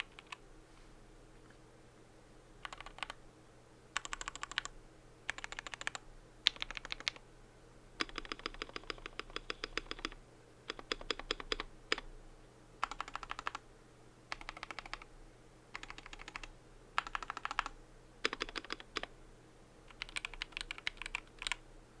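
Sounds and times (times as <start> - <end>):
mechanical keyboard typing: 0.0 - 0.4, 2.6 - 3.2, 4.0 - 4.7, 5.3 - 7.2, 8.0 - 12.1, 12.8 - 13.6, 14.3 - 15.1, 15.7 - 19.1, 19.9 - 21.6.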